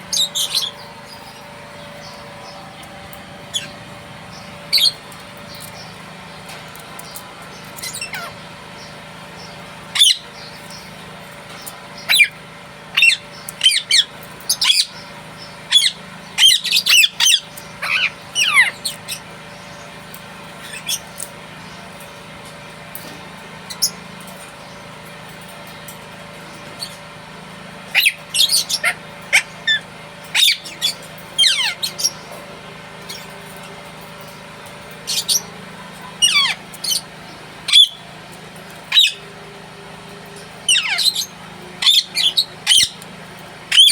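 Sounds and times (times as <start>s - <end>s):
parakeet squawking: 0.0s - 1.4s, 3.4s - 5.9s, 7.8s - 8.4s, 9.9s - 10.9s, 11.6s - 15.0s, 15.7s - 19.3s, 20.6s - 21.2s, 27.9s - 32.3s, 35.1s - 37.1s, 37.7s - 38.0s, 38.9s - 39.3s, 40.6s - 43.0s, 43.7s - 43.9s.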